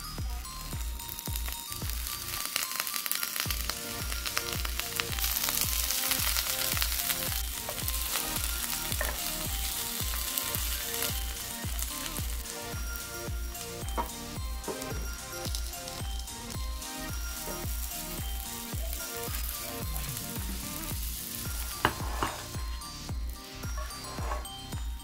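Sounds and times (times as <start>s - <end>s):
background music with beat: 0.0s - 25.0s
egg sizzling in a pan: 0.3s - 25.0s.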